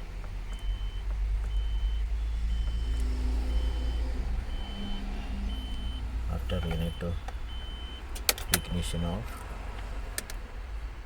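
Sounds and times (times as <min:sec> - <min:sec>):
steady low hum: 0:00.0 - 0:08.1
high electronic warning beeps: 0:00.5 - 0:09.0.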